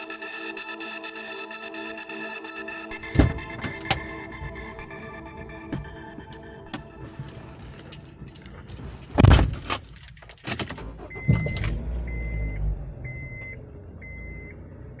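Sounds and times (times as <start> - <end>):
loud clunks: 2.9 - 4.8, 9.1 - 9.8
electronic beeps: 11.1 - 14.6.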